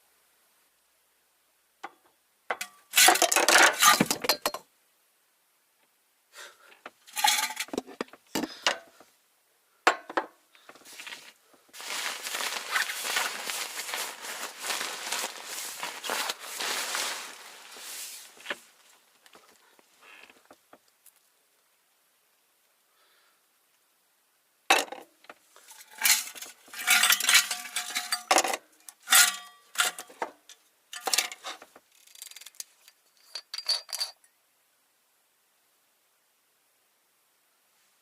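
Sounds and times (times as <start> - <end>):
cookware and utensils clinking: 7.1 - 7.8, 25.8 - 30.2.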